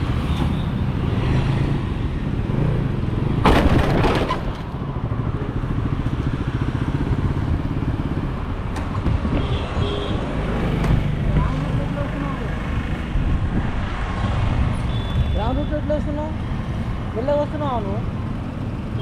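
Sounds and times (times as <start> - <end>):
loud crash: 3.4 - 4.7.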